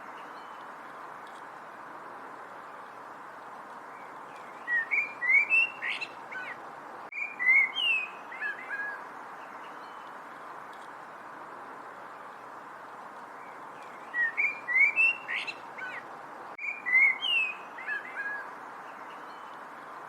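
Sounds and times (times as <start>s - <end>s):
background hiss: 0.0s - 20.0s
bird chirping: 3.9s - 10.2s, 13.4s - 19.6s.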